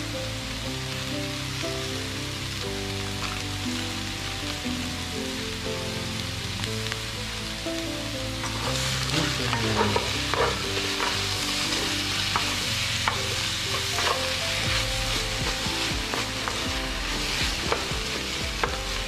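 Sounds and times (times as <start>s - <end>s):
food sizzling in hot oil: 0.0s - 19.0s
utensil scraping a pan: 8.4s - 19.0s.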